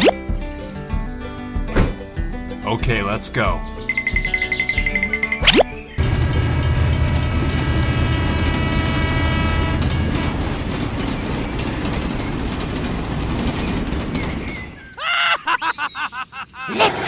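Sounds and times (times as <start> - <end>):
heavy vehicle engine rumbling: 6.0 - 15.0.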